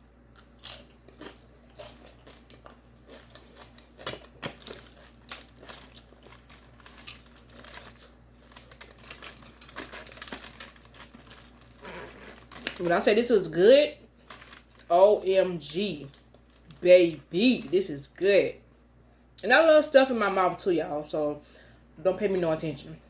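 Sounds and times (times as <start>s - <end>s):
food crunching and chewing: 0.2s - 13.1s, 14.0s - 14.9s, 16.0s - 17.7s.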